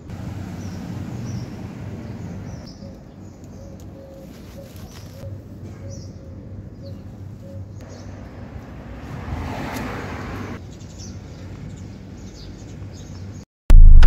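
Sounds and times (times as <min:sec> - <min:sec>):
birds chirping: 0:00.3 - 0:08.4
rushing noise: 0:13.7 - 0:14.0.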